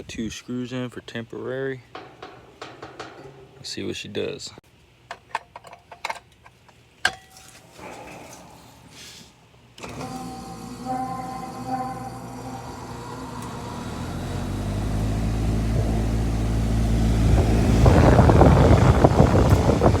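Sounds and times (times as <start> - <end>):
fan motor humming and whining: 9.8 - 20.0
rush of air from fan blades: 17.2 - 20.0.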